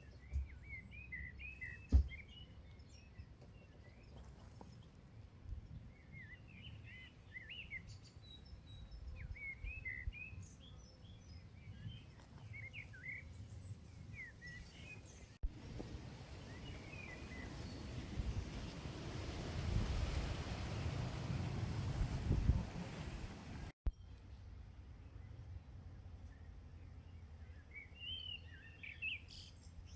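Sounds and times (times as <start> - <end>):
small songbirds chirping: 0.0 - 19.0, 23.9 - 29.9.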